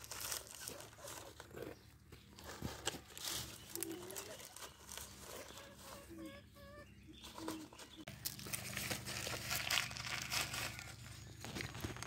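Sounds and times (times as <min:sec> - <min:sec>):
crackling crunching rustle: 0:00.0 - 0:06.1, 0:07.8 - 0:12.0
soft wavering bird calls: 0:03.5 - 0:08.1.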